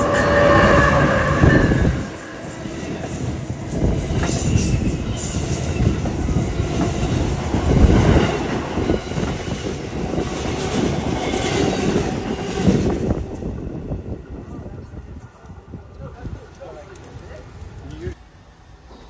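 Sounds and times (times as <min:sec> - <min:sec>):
train wheels clacking: 0:00.0 - 0:13.7
train wheels rumbling on rails: 0:00.0 - 0:19.0.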